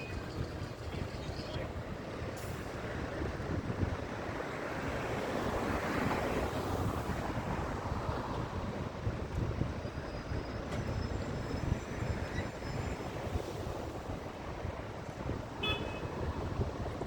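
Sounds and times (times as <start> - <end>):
rumble of buses and traffic: 0.0 - 17.0
high-pitched brake squeal: 9.7 - 13.6.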